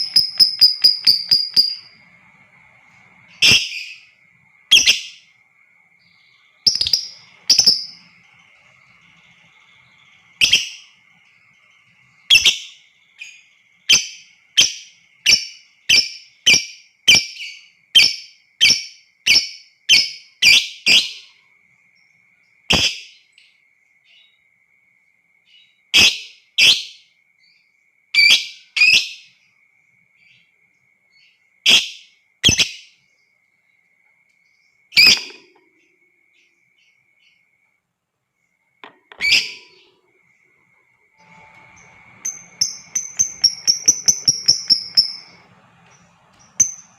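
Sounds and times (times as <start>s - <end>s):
faint high-pitched tone: 0.0s - 14.4s, 33.5s - 46.9s
lovebirds shrill calls: 6.2s - 21.1s, 39.2s - 39.9s, 41.3s - 46.9s.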